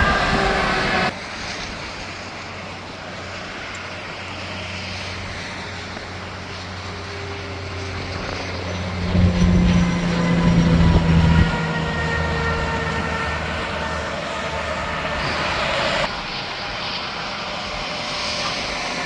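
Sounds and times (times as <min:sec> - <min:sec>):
heavy vehicle approaching: 0:00.0 - 0:16.3
low engine drone: 0:00.0 - 0:19.0
vehicle passing loudly: 0:04.5 - 0:16.1.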